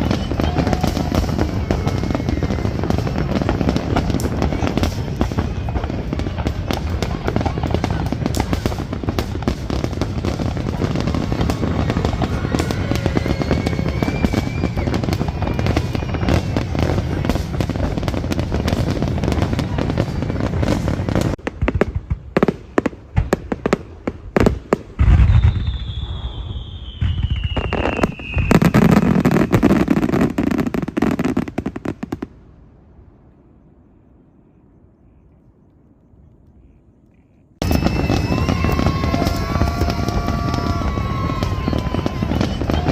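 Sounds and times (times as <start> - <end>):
firework bang with falling whistle: 0.0 - 6.2, 9.6 - 17.8, 25.0 - 31.4, 37.6 - 42.9
fireworks crackling and bangs: 0.0 - 33.1, 37.6 - 42.9.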